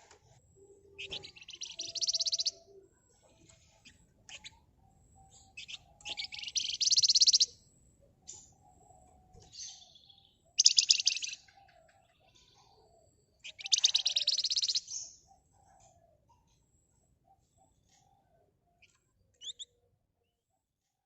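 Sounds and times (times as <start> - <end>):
soft short bird calls: 0.0 - 7.6, 8.2 - 16.6, 17.3 - 19.8
songbird rattling trills: 1.0 - 2.8, 3.6 - 7.6, 10.0 - 11.5, 13.4 - 15.1, 19.4 - 19.7.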